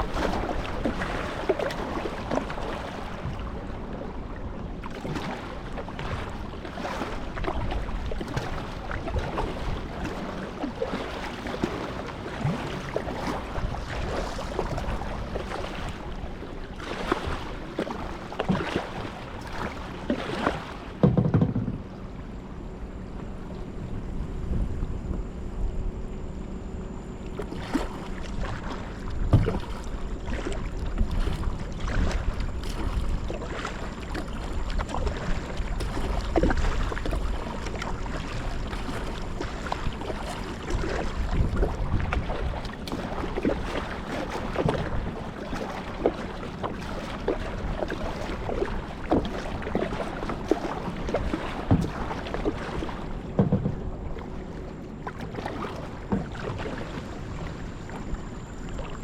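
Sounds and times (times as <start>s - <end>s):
wind rumbling on microphone: 0.0s - 18.9s, 23.2s - 46.2s
water sloshing and splashing: 0.0s - 59.0s
short irregular knocks: 21.0s - 22.0s, 53.3s - 53.9s.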